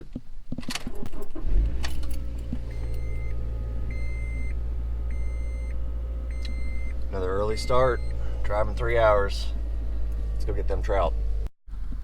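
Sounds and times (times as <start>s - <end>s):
car engine starting and idling: 0.9s - 12.0s
high repeating beep: 5.1s - 7.0s.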